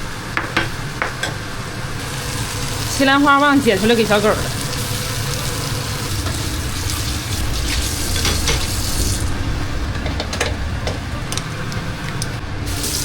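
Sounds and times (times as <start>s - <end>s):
steady low hum: 0.0s - 13.0s
food sizzling in a frying pan: 1.9s - 9.8s, 12.7s - 13.0s.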